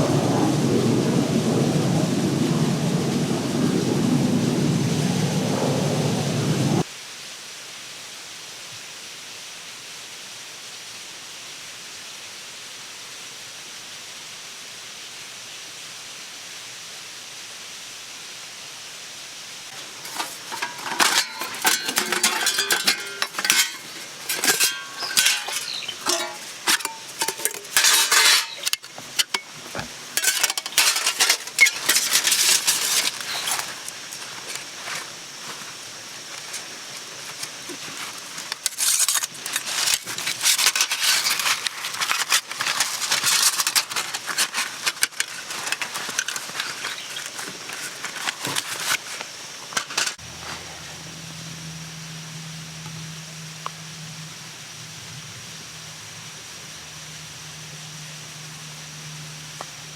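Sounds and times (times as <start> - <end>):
faint steady hiss: 6.2 - 59.9
metal utensils clinking on cookware: 19.7 - 33.9, 38.4 - 49.0.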